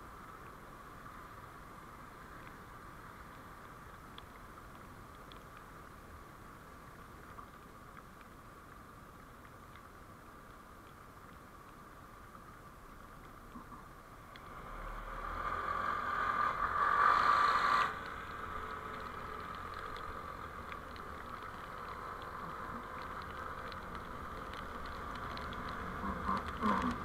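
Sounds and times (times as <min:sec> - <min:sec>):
vehicle road and engine noise: 0:00.0 - 0:12.7, 0:13.3 - 0:27.0.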